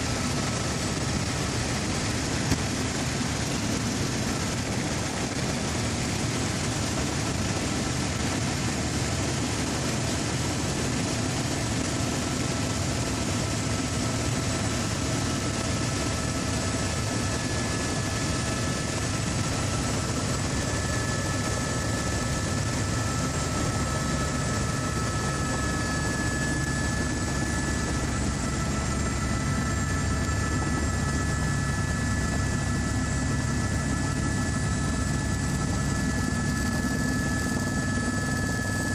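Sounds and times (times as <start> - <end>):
helicopter drone: 0.0 - 38.9.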